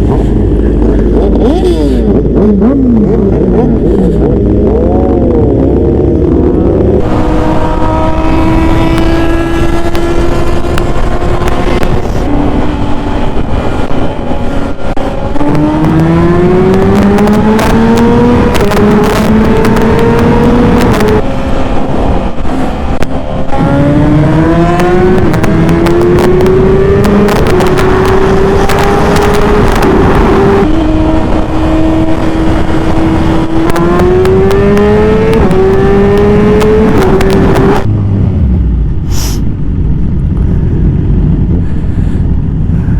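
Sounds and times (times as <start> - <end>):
motorcycle engine accelerating: 0.0 - 42.9
wind rush on microphone: 0.0 - 42.9.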